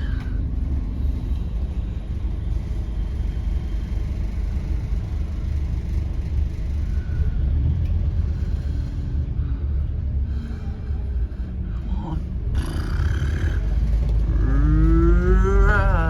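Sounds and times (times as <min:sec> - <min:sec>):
bus cabin hum: 0:00.0 - 0:16.0
bus diesel engine rumble: 0:00.0 - 0:16.0.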